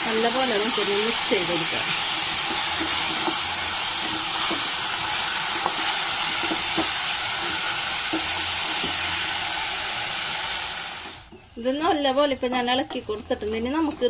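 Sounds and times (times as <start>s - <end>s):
food sizzling in a pan: 0.0s - 11.4s
spatula scraping a pan: 1.7s - 9.8s.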